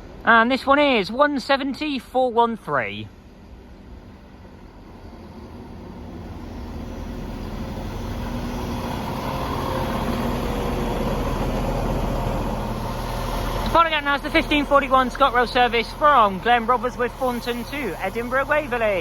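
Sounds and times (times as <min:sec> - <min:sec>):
diesel train engines droning: 0:00.0 - 0:19.0.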